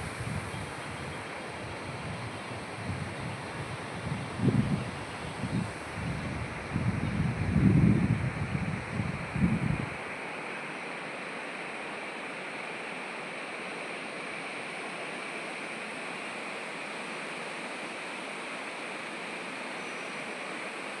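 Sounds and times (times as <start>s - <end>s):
water rushing: 9.1s - 21.0s.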